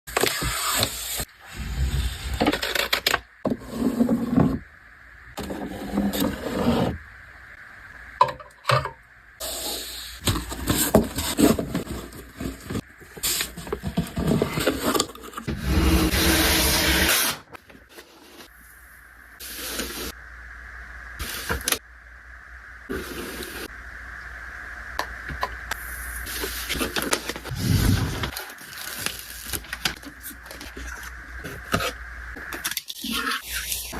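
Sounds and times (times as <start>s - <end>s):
faint steady hum: 17.5s - 33.9s.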